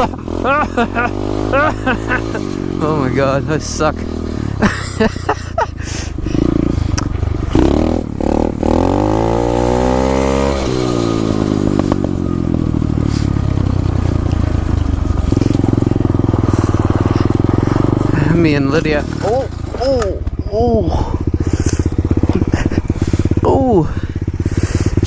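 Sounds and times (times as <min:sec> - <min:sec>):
motorbike engine revving: 0:00.0 - 0:25.0
knocks and scrapes: 0:18.8 - 0:20.4.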